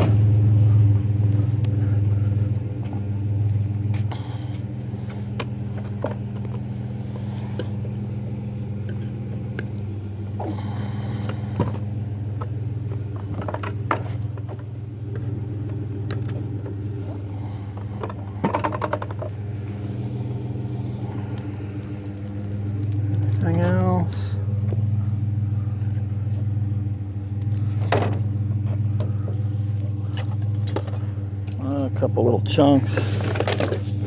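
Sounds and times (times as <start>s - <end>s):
pickup truck engine idling: 0.0s - 34.0s
rattling clicks: 17.8s - 19.4s.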